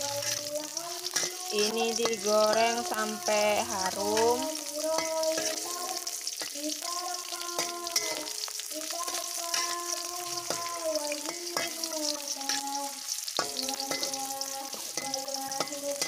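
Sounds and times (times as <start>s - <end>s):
metal spatula scraping a pan: 0.0s - 6.6s, 7.3s - 16.0s
garlic sizzling in hot oil: 0.0s - 16.0s.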